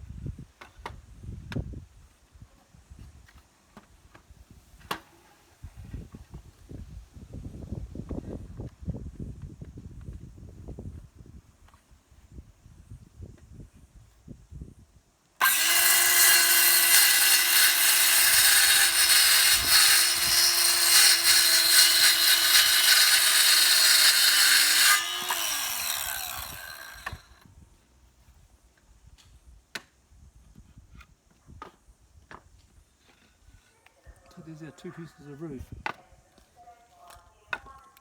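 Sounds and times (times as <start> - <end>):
circular saw cutting wood: 15.4 - 27.4.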